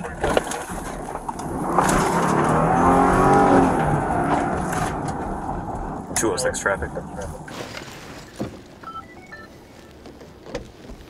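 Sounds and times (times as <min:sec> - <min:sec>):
car engine revving: 0:00.0 - 0:08.7
road noise: 0:00.0 - 0:11.0.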